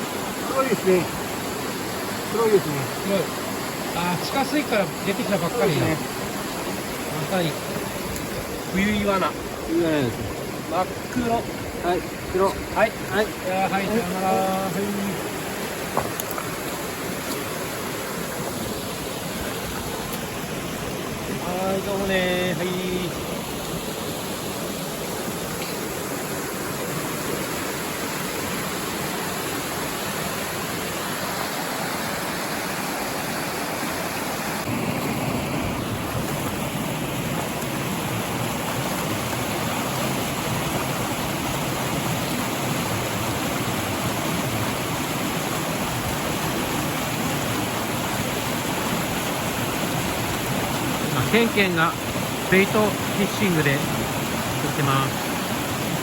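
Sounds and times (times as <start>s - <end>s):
creek water rushing over rocks: 0.0s - 56.0s.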